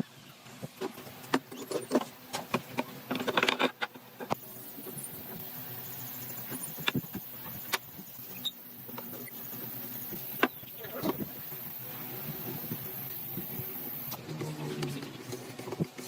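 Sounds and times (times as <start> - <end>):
steady hiss: 0.1 - 14.5
sharp clicks and knocks: 0.8 - 4.4, 6.5 - 9.4.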